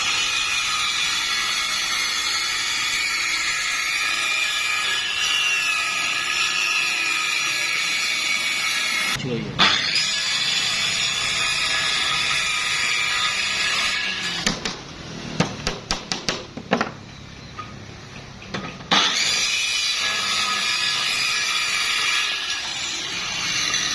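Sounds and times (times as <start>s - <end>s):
sharp knocks: 15.4s - 17.0s.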